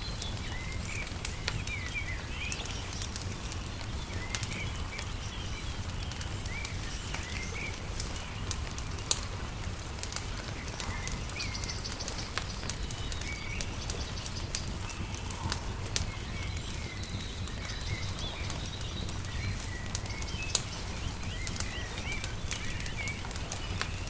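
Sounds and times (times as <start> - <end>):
small birds chirping: 0.0 - 24.0
wood fire crackling and popping: 0.0 - 24.0.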